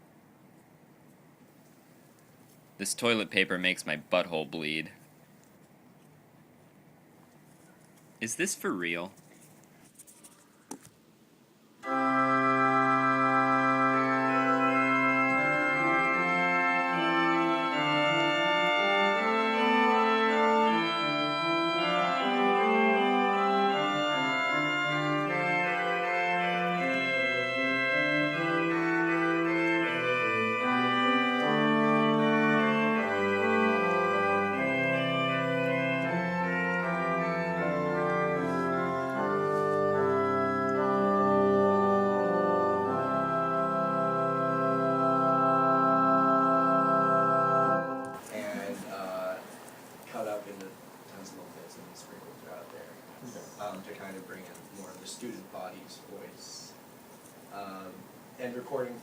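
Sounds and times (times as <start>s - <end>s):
organ chords: 11.8s - 59.0s.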